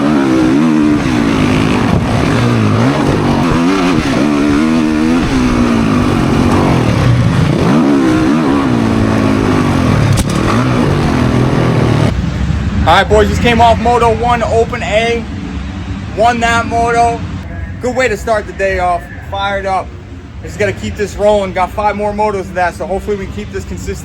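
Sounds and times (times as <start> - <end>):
dirt bike engine revving: 0.0 - 17.4
steady rushing noise: 0.0 - 24.0.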